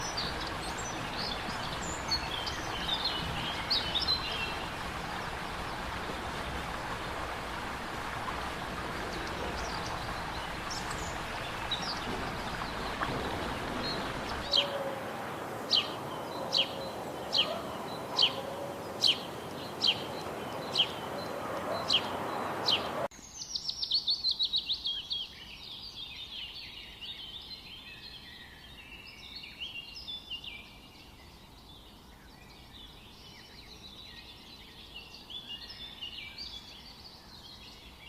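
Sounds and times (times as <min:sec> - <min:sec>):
birds chirping: 0:00.0 - 0:23.8.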